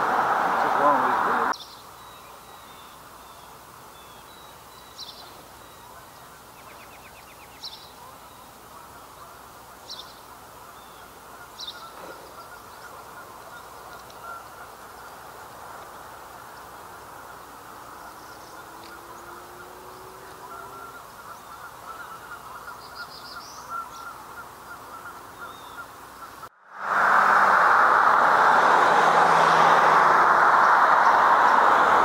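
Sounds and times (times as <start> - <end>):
birds calling: 0.0 - 26.5.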